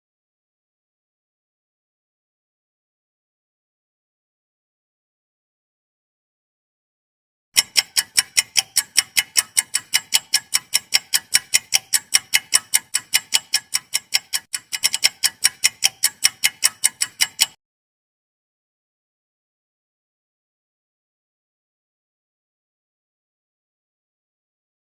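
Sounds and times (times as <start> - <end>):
fast clock ticking: 7.6 - 17.6.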